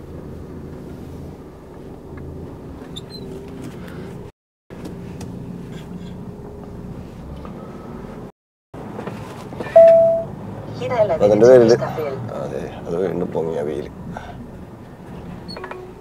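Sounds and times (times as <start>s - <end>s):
truck diesel engine humming: 9.6s - 16.0s.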